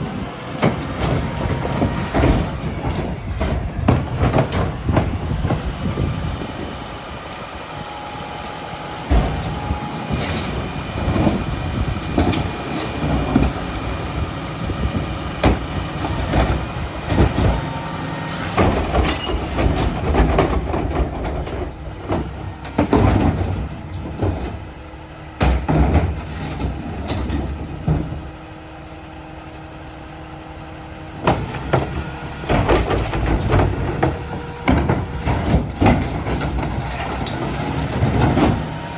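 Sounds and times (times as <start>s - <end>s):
garbage truck engine running: 0.0s - 38.9s
sharp metal clanks and bangs: 18.5s - 20.4s.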